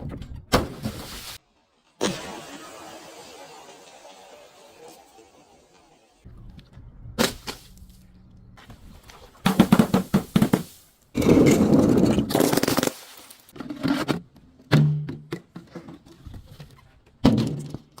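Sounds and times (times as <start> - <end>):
dense crunching burst: 9.4 - 13.5
objects crushed and breaking: 9.4 - 13.6.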